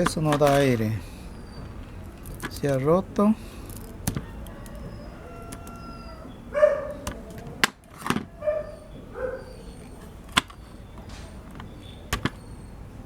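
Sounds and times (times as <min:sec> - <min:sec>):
sharp clicks and knocks: 0:00.0 - 0:01.0, 0:03.6 - 0:04.8, 0:10.3 - 0:12.4
dog barking: 0:04.5 - 0:07.3, 0:08.2 - 0:10.1.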